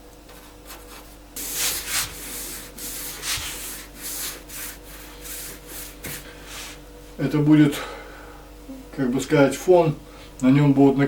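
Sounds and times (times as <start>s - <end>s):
paintbrush scratchy strokes: 0.7s - 6.3s.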